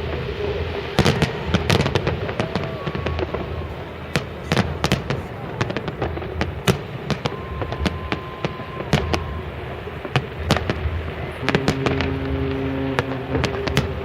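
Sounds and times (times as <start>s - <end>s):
fireworks bangs and crackles: 0.0s - 14.0s
thin firework whistle: 0.0s - 14.0s
low droning tone: 11.1s - 14.0s.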